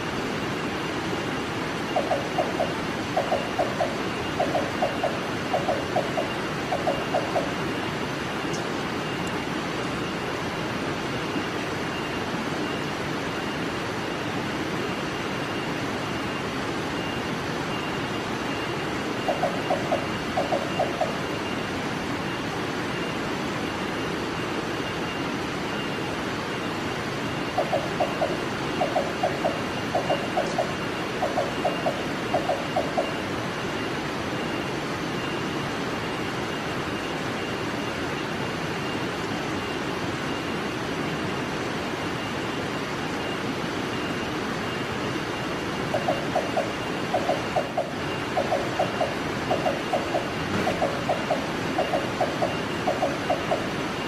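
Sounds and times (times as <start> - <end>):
rushing background hiss: 0.0 - 54.0
bird low tuk notes: 1.9 - 7.8, 27.4 - 33.2, 45.8 - 54.0.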